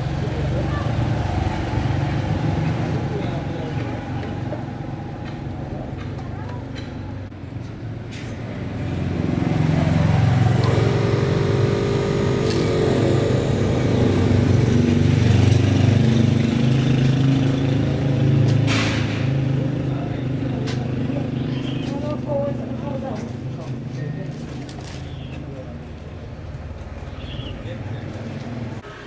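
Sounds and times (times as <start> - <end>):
engine running steadily: 0.0 - 7.4, 8.0 - 29.0.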